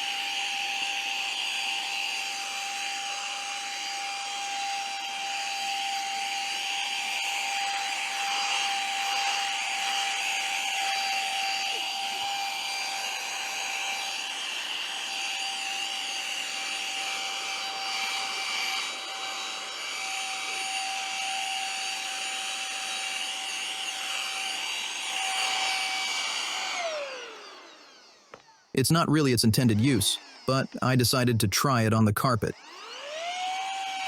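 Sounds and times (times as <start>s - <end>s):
motor spinning down: 0.0s - 31.1s, 32.6s - 34.0s
handheld vacuum cleaner whine: 0.0s - 31.6s, 32.5s - 34.0s.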